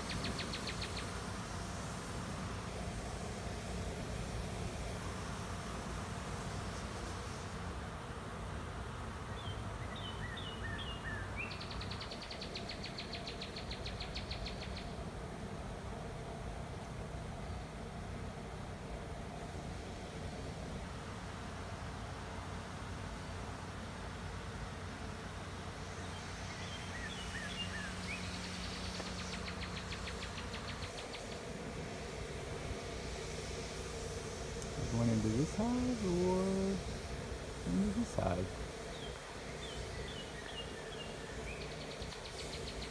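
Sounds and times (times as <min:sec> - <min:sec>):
songbird singing trill: 0:00.0 - 0:01.2, 0:09.3 - 0:15.0, 0:25.9 - 0:31.5, 0:37.6 - 0:42.9
bee swarm humming: 0:00.0 - 0:42.9
birds chirping: 0:26.0 - 0:31.5, 0:37.6 - 0:42.9.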